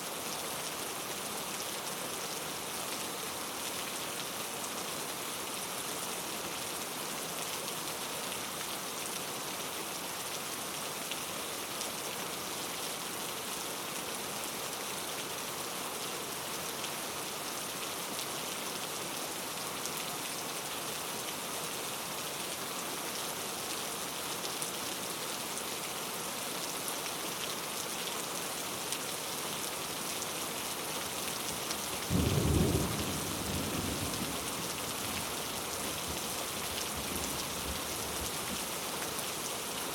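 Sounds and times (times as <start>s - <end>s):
heavy rain hissing: 31.0s - 39.9s
low thunder rumble: 32.1s - 34.7s.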